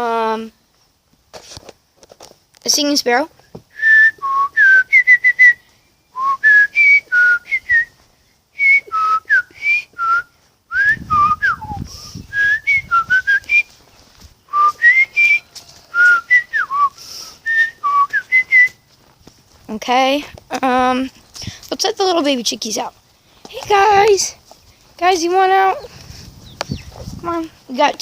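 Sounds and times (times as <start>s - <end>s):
person whistling birdsong: 3.7s - 8.0s, 8.6s - 13.8s, 14.5s - 18.8s.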